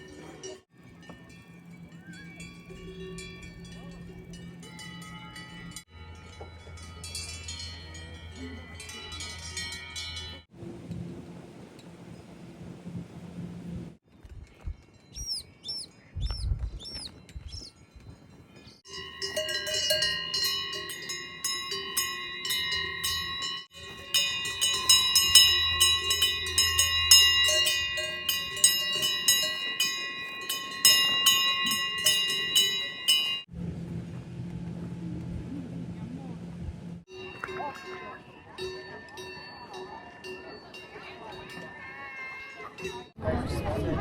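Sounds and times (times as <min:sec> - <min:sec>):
cowbells clanking: 0:00.0 - 0:10.5, 0:17.1 - 0:33.5, 0:37.1 - 0:43.2.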